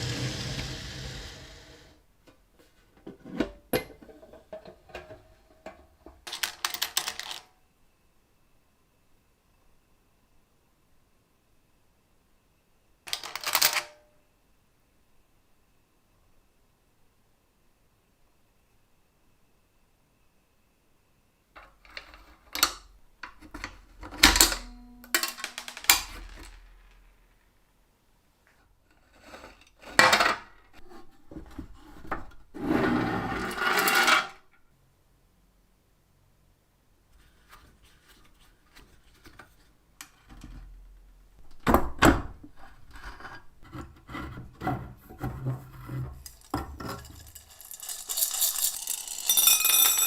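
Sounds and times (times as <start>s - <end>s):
metal parts clattering: 24.3s - 26.9s, 46.1s - 50.0s.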